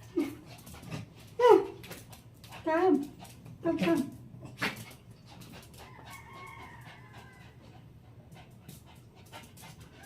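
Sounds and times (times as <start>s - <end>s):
distant rooster crowing: 5.8s - 7.7s.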